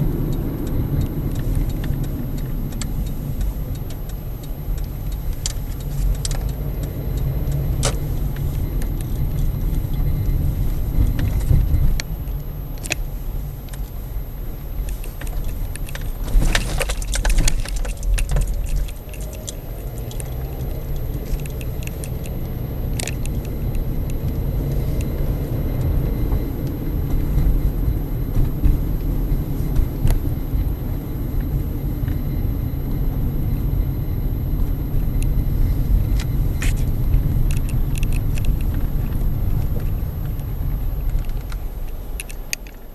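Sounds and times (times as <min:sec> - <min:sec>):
vehicle rumbling in motion: 0:00.0 - 0:42.9
rattling clicks: 0:14.8 - 0:25.1.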